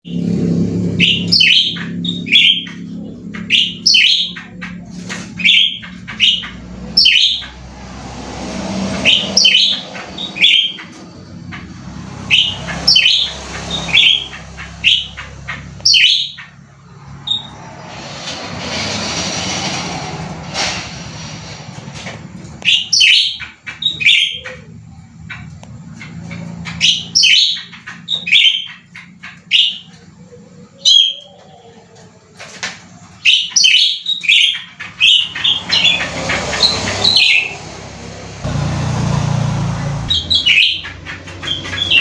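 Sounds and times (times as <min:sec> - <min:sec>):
songbird chirping loudly: 0:00.8 - 0:07.6, 0:08.9 - 0:16.6, 0:22.6 - 0:31.7, 0:33.2 - 0:37.8, 0:38.5 - 0:42.0
broad rushing noise: 0:06.2 - 0:15.9, 0:16.7 - 0:22.7.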